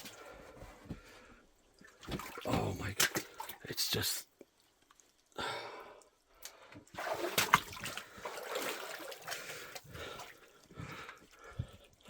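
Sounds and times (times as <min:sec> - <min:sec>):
water splashing from wading: 0:02.0 - 0:03.6, 0:06.9 - 0:10.3.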